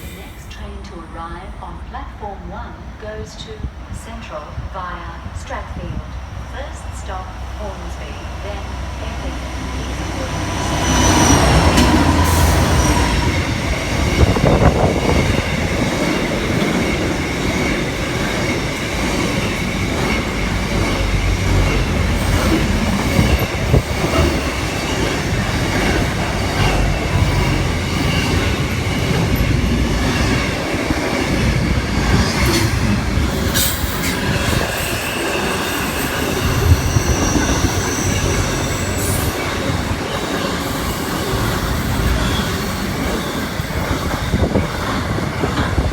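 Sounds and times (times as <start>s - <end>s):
train wheels rumbling on rail: 0.0s - 45.9s
high-pitched wheel squeal: 10.8s - 13.5s, 33.4s - 39.8s.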